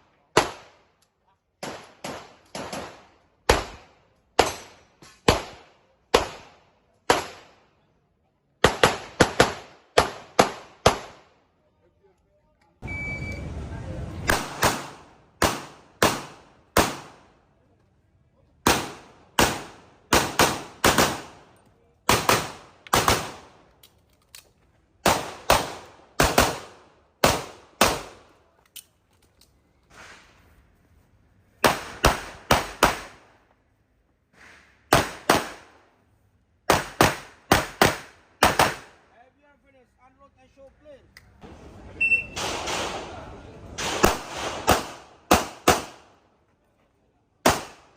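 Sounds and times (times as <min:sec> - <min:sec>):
pistol shots: 0:08.6 - 0:11.2, 0:14.3 - 0:17.2, 0:18.6 - 0:21.4, 0:22.1 - 0:23.6, 0:25.0 - 0:28.2, 0:31.6 - 0:33.2, 0:34.9 - 0:35.7, 0:36.7 - 0:39.0, 0:43.8 - 0:46.1, 0:47.4 - 0:47.9.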